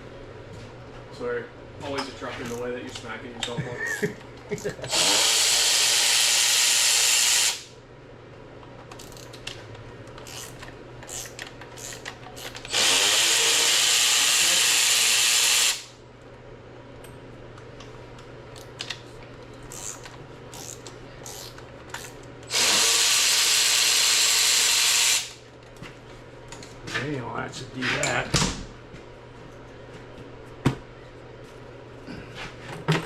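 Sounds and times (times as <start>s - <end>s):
power tool running: 4.9s - 7.7s, 12.7s - 15.9s, 22.5s - 25.4s.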